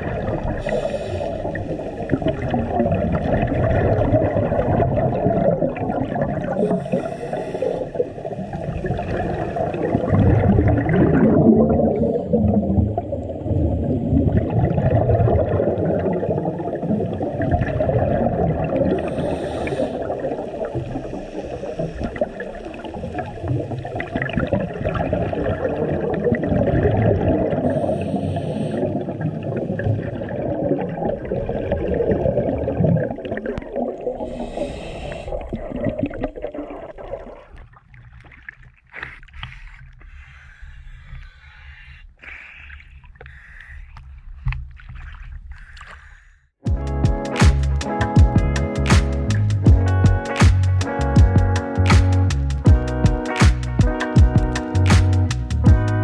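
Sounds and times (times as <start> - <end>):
exhaled bubbles rumbling underwater: 0.0 - 42.1, 46.8 - 56.0
regulator inhalation hiss: 0.6 - 2.1, 6.6 - 8.3, 19.0 - 23.4, 27.7 - 28.9, 34.3 - 35.4.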